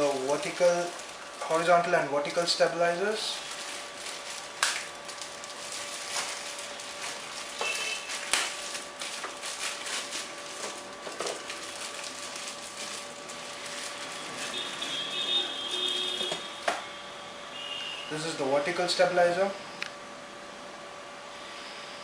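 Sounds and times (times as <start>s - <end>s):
plastic wrapping crinkling: 0.0s - 16.7s.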